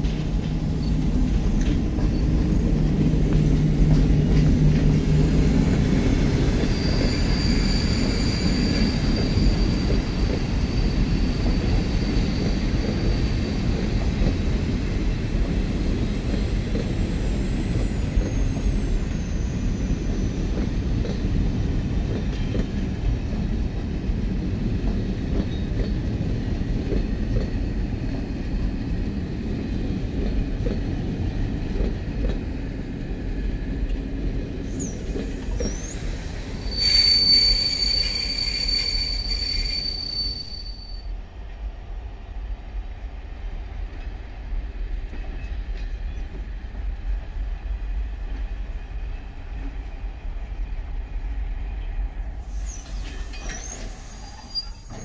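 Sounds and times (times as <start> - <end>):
train wheels rumbling on rail: 0.0 - 55.0
high-pitched wheel squeal: 6.0 - 21.2, 34.7 - 41.1, 52.5 - 55.0.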